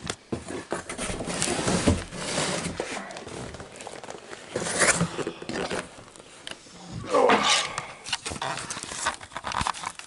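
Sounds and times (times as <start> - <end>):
bubble wrap and cardboard crinkling: 0.0 - 6.6, 8.0 - 10.0.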